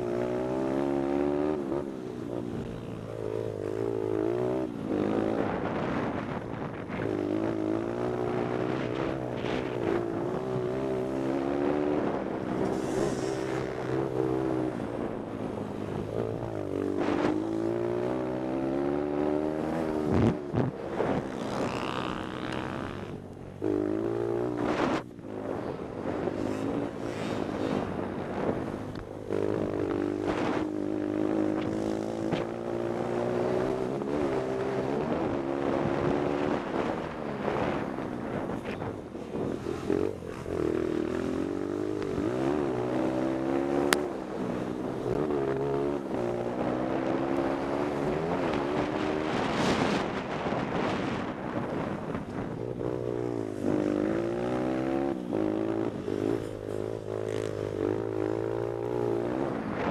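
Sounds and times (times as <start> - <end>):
motorbike engine revving: 0.0 - 38.8.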